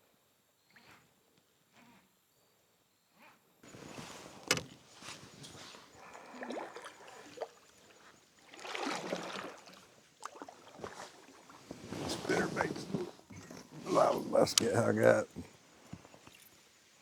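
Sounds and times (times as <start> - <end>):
water sloshing and splashing: 3.7 - 16.5.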